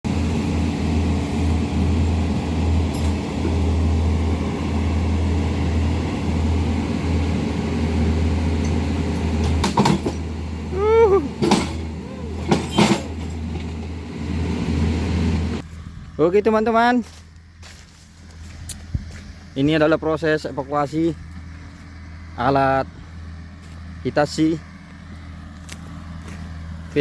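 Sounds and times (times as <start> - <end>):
excavator diesel engine running: 0.0 - 27.0
falling pitched squeal: 10.7 - 13.1.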